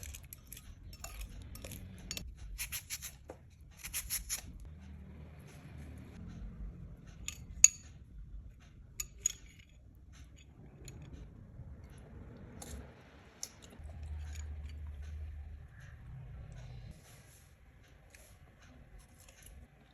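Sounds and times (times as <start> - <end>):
utensils clinking against dish: 0.0 - 3.2, 7.1 - 11.3.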